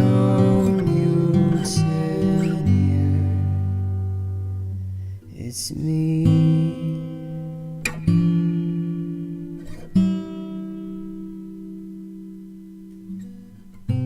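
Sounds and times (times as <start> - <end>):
acoustic guitar chords strummed: 0.0 - 14.0.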